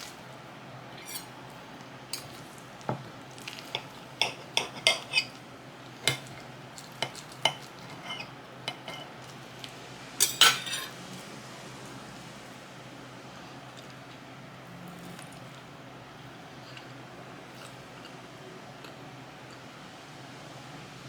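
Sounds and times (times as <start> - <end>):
cutlery clinking on a plate: 1.0 - 1.3, 2.1 - 5.4, 6.0 - 9.3, 10.2 - 11.0.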